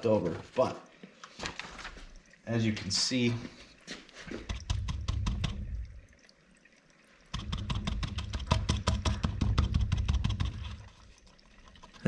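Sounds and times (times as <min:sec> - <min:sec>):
liquid draining into battery: 0:00.1 - 0:12.0
irregular clicks and knocks: 0:04.4 - 0:05.8, 0:07.3 - 0:11.0.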